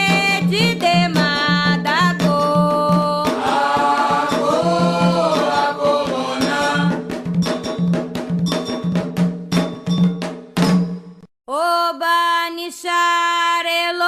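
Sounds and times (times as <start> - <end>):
hand drums: 0.0 - 11.3
voices singing long notes: 3.4 - 7.0
struck metal bell: 6.5 - 11.3.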